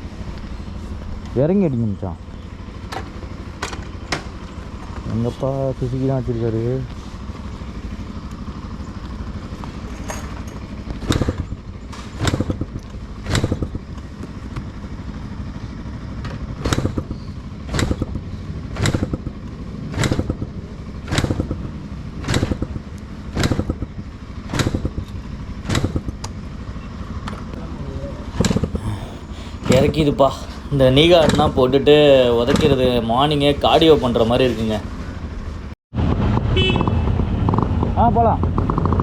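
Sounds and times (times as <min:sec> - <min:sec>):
motorcycle engine idling: 0:00.0 - 0:35.7
motorcycle kick-start clatter: 0:02.8 - 0:05.6, 0:08.2 - 0:27.6, 0:30.9 - 0:33.0.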